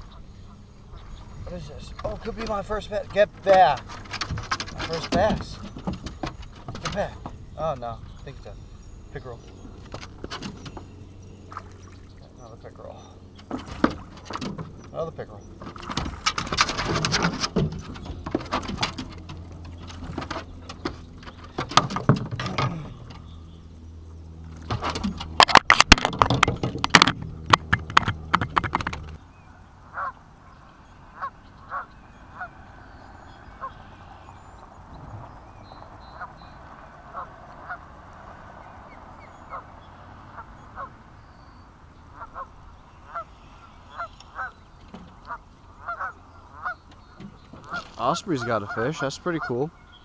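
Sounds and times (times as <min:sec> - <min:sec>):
bird calling: 0:00.0 - 0:25.5, 0:26.2 - 0:50.0
low steady hum: 0:00.0 - 0:50.0
knocks and clicks: 0:02.0 - 0:07.4, 0:15.6 - 0:23.2, 0:24.5 - 0:29.2.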